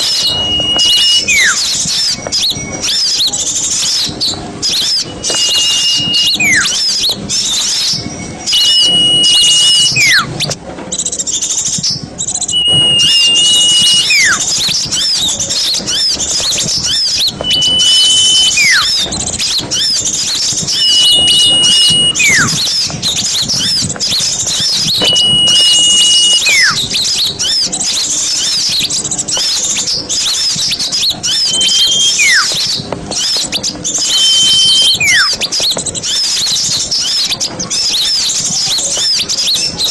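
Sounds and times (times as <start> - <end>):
whistled note sliding down: 0.0 - 3.2, 4.6 - 10.4, 12.5 - 14.8, 15.9 - 22.9, 24.5 - 26.9, 31.2 - 33.3, 34.0 - 35.4
flock of small birds chattering: 0.0 - 39.9.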